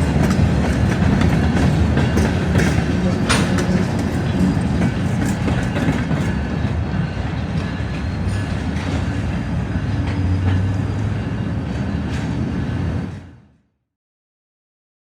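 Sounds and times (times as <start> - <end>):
steel wheels clicking on rails: 0.0 - 12.9
freight train rumbling: 0.0 - 13.6.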